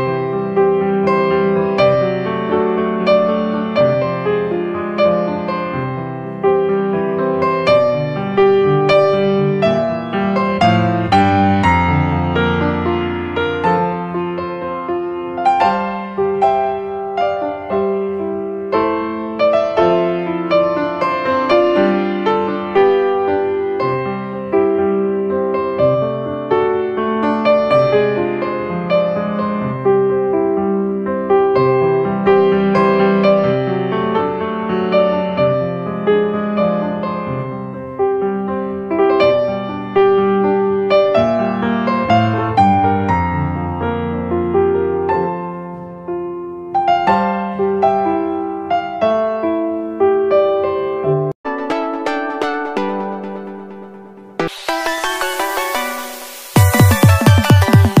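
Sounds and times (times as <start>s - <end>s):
gentle piano music: 0.0s - 54.5s.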